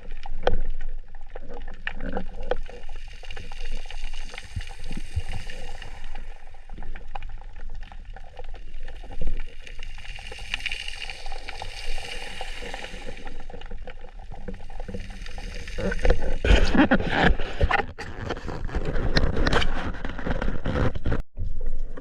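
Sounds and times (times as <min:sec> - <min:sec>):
water hissing: 0:03.3 - 0:06.6, 0:09.7 - 0:16.7
sharp clicks and crackles: 0:13.0 - 0:22.0.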